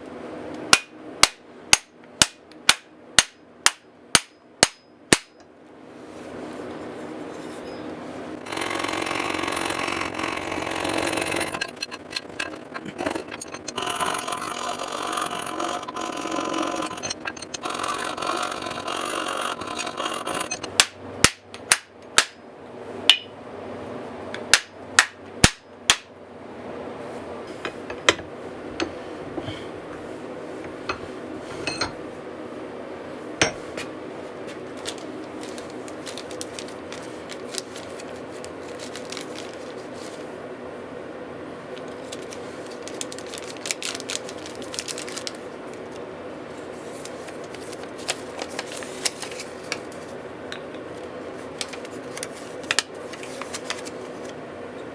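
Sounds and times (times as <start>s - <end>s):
steady scraping noise: 8.4s - 20.7s.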